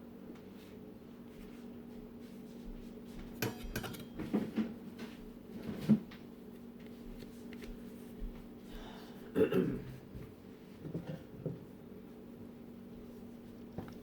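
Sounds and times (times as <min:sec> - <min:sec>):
utensils and dishes clattering: 0:03.4 - 0:04.7.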